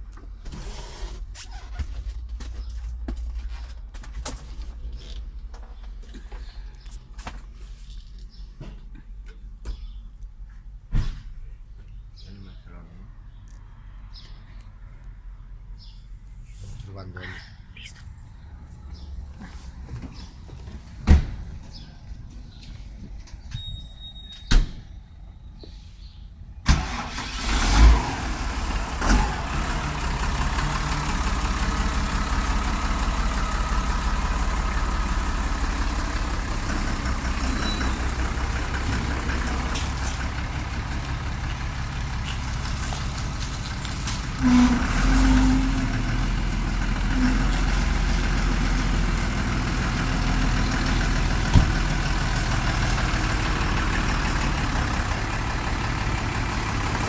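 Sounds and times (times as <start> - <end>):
tractor diesel engine idling: 26.7 - 57.0.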